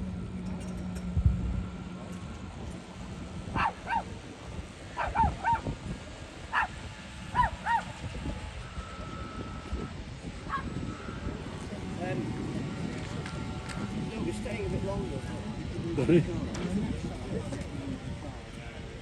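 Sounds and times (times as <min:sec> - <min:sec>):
low steady hum: 0:00.0 - 0:19.0
animal yelping: 0:03.6 - 0:04.1, 0:05.0 - 0:05.7, 0:06.5 - 0:07.9.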